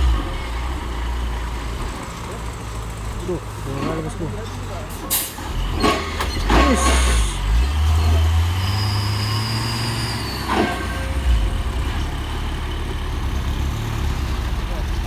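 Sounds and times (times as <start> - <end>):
truck diesel engine drone: 0.0 - 15.0.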